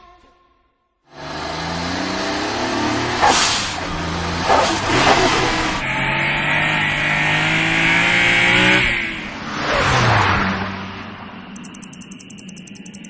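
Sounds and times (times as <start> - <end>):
car engine at high revs: 1.1 - 13.0
car rushing past: 1.2 - 11.5.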